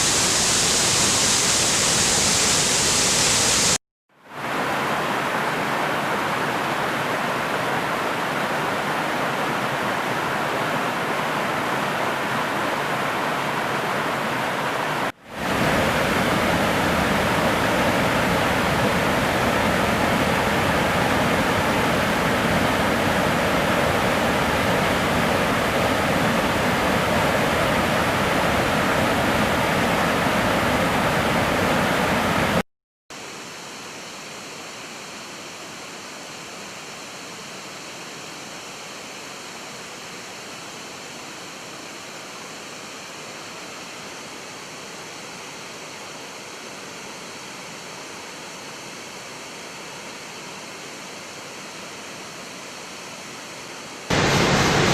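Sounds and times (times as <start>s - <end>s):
waterfall rushing: 0.0s - 3.8s, 4.4s - 32.6s, 54.1s - 54.9s.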